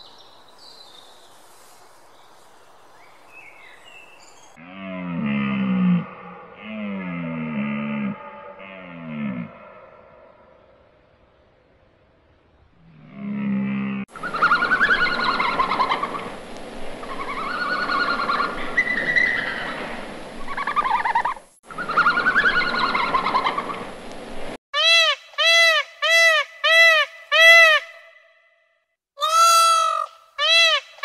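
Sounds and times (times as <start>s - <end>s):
animal calls rising and falling: 17.0s - 23.9s, 29.2s - 31.0s.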